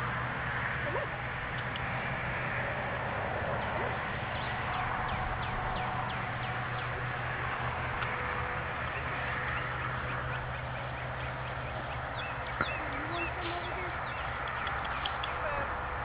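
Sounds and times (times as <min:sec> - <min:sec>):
steady low hum: 0:00.0 - 0:16.0
bird chirping: 0:08.9 - 0:15.7.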